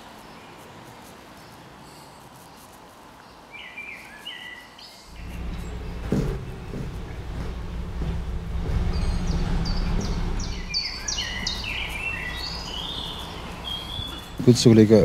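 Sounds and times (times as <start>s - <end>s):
low outdoor rumble: 5.1s - 15.0s
songbird whistling: 8.8s - 14.5s.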